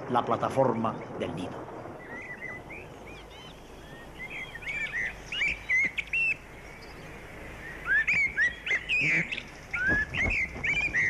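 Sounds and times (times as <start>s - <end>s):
bird chirps and whistles: 2.1s - 7.0s, 7.6s - 11.0s.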